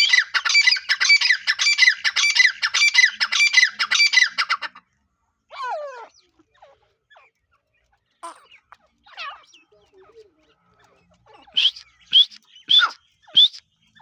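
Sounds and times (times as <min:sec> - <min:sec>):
francolin harsh repeated calls: 0:11.4 - 0:13.7.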